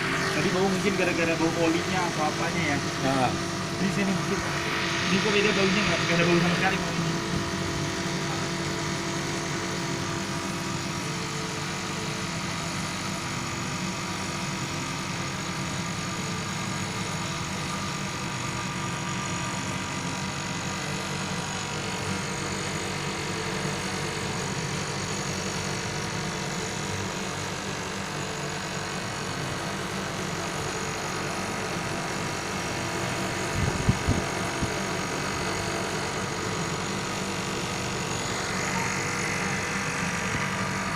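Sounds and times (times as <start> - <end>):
air conditioner humming: 0.0 - 11.4, 27.6 - 40.9.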